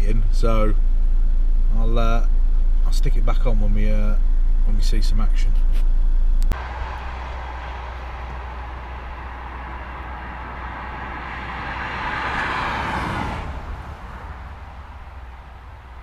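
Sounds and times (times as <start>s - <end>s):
steady low rumble: 0.0s - 16.0s
passing vehicle tyre noise: 6.5s - 16.0s.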